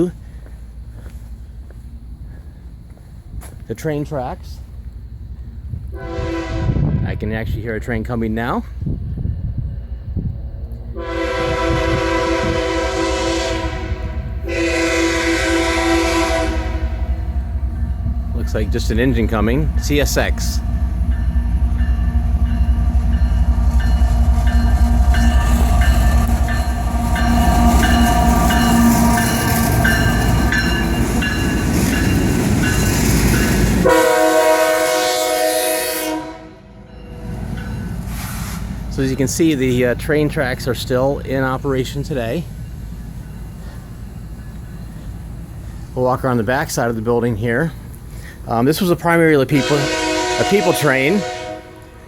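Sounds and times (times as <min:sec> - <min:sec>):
locomotive engine rumble: 0:00.0 - 0:35.5, 0:36.1 - 0:52.0
locomotive air horn: 0:05.9 - 0:07.0, 0:11.0 - 0:17.1, 0:33.8 - 0:36.9, 0:49.5 - 0:52.0.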